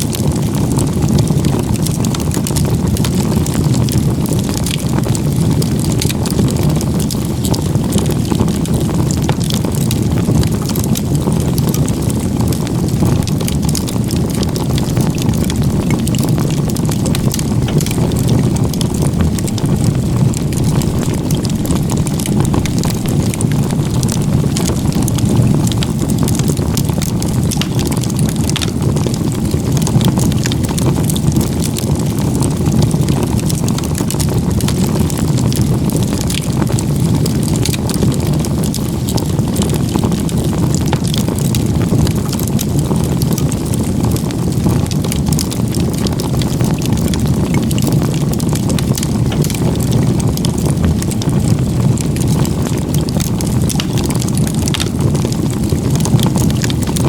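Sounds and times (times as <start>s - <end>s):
crackles and pops of burning wood: 0.0s - 57.0s
low rush of flames: 0.1s - 57.0s.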